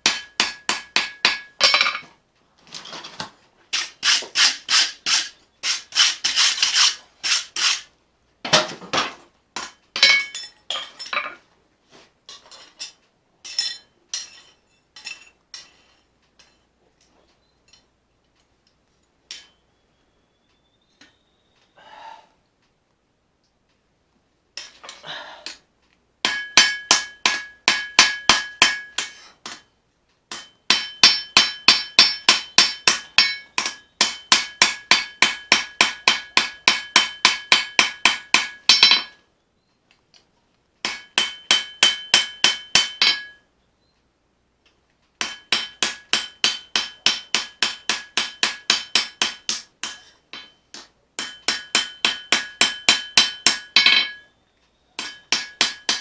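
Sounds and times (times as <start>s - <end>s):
hammer striking blade on anvil: 0.0s - 2.0s, 26.2s - 29.7s, 30.3s - 39.2s, 40.8s - 43.4s, 45.2s - 54.3s, 55.0s - 56.0s
anvil ringing: 26.3s - 29.2s, 30.3s - 39.2s, 40.9s - 43.4s, 45.2s - 54.4s, 55.0s - 56.0s.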